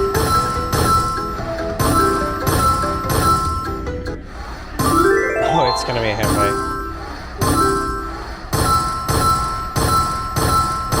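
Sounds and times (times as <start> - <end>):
held synth tones: 4.8 - 8.5
bell-like chimes: 4.9 - 11.0.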